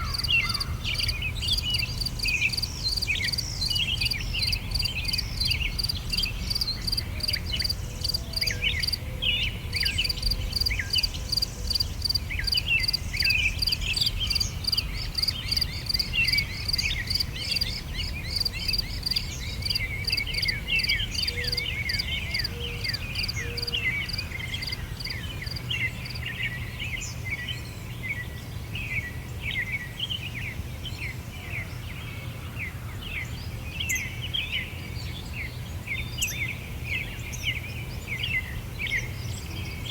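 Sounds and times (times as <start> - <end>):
insect chirping: 0.0 - 9.0, 9.8 - 26.2
small birds chirping: 0.0 - 27.6.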